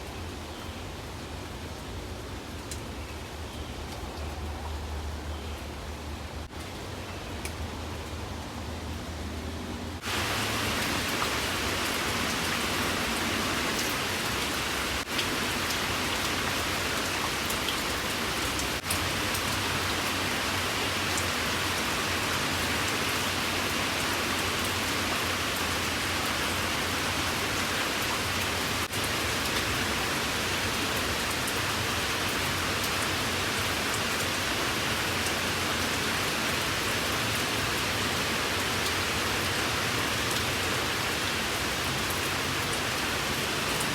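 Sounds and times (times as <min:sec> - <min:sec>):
rain hiss: 0:10.0 - 0:43.9.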